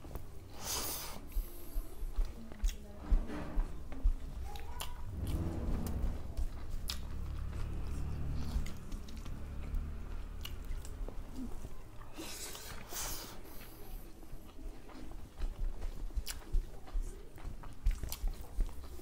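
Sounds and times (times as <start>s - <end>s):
people chewing: 9.1s - 19.0s.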